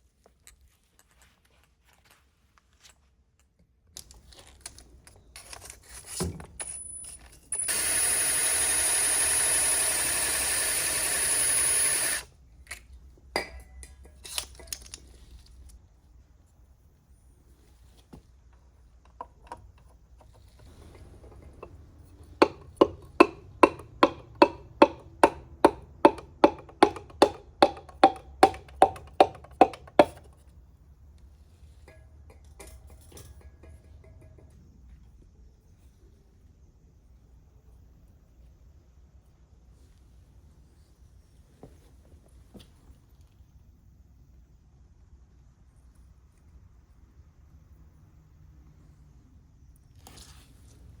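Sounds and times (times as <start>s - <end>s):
hammer tapping on metal: 22.4s - 30.3s.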